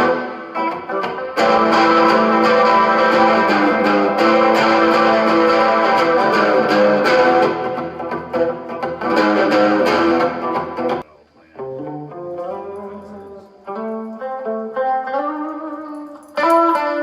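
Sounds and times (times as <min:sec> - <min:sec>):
electric guitar strumming chords: 0:00.0 - 0:17.0.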